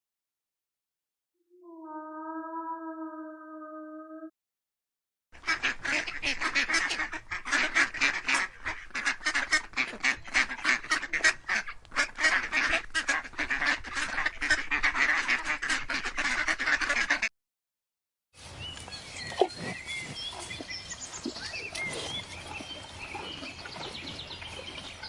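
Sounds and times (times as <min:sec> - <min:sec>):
ducks quacking: 0:05.4 - 0:17.3.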